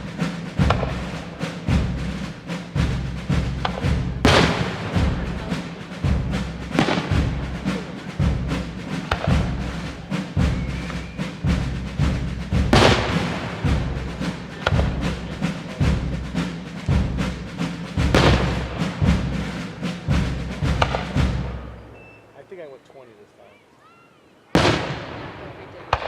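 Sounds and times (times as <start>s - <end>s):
fireworks bangs and crackles: 0.0s - 2.0s, 2.8s - 16.1s, 17.9s - 19.3s, 20.1s - 21.8s, 24.5s - 26.0s
fireworks booms: 0.0s - 22.0s, 24.6s - 26.0s
music: 0.0s - 22.1s.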